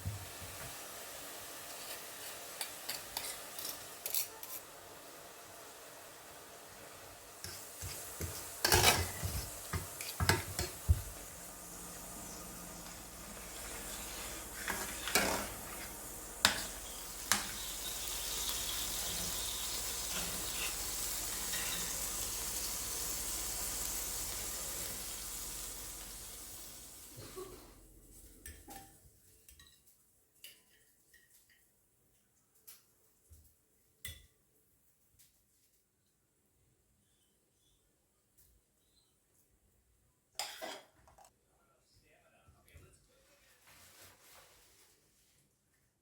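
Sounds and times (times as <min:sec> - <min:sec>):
food sizzling in pan: 0:00.0 - 0:28.7.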